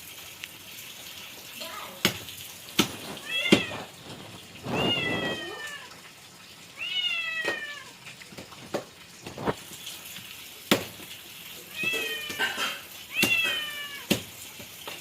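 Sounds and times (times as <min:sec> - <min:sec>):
cat meowing: 0:03.2 - 0:04.0, 0:04.6 - 0:06.0, 0:06.7 - 0:08.0, 0:11.6 - 0:14.2.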